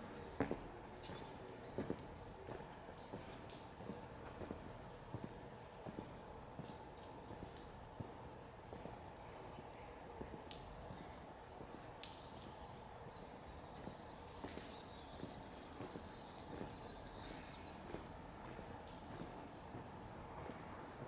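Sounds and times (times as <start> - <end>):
small birds chirping: 6.6 - 9.9, 10.5 - 19.8
footsteps walking: 13.8 - 21.0.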